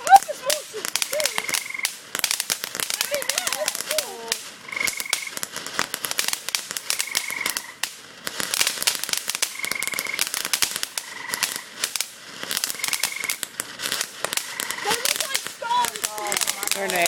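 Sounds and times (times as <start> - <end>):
fountain firework crackling: 0.0 - 17.0
frog trilling: 1.4 - 1.8, 4.7 - 5.3.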